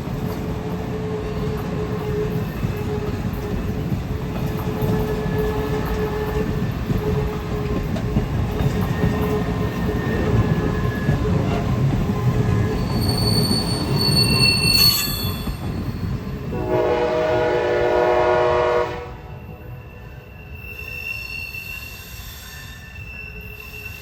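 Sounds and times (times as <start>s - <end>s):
train wheel squeal: 0.0s - 17.0s, 18.6s - 24.0s
train rolling past rumbling: 0.0s - 24.0s
locomotive horn: 16.5s - 19.4s.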